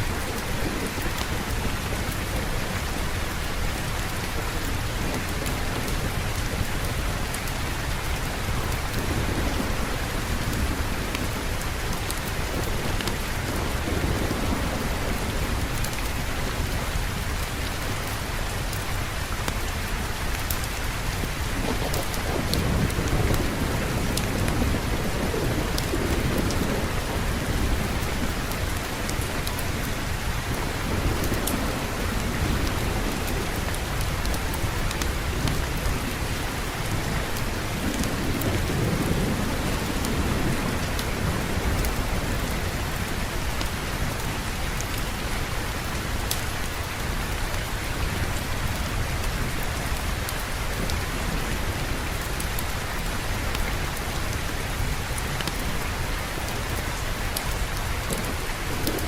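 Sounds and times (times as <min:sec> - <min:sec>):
heavy rain: 0:00.0 - 0:59.0
low rolling thunder: 0:08.4 - 0:17.3, 0:21.4 - 0:43.2, 0:56.6 - 0:59.0.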